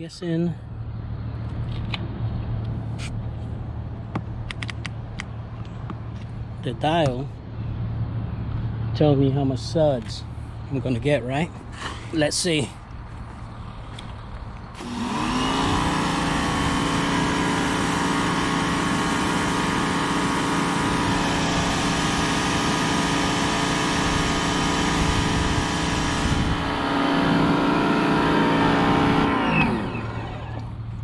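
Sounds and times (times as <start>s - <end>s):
pressure washer motor humming: 14.8s - 30.5s.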